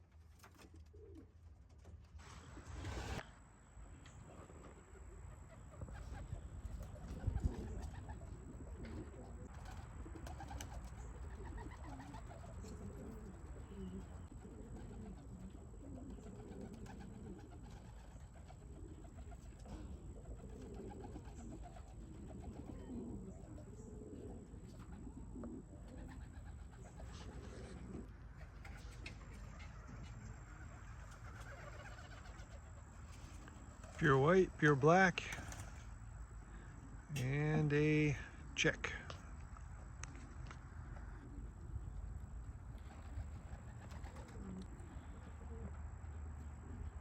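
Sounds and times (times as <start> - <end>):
pigeons cooing: 0.4 - 3.3, 4.0 - 37.2, 39.2 - 47.0.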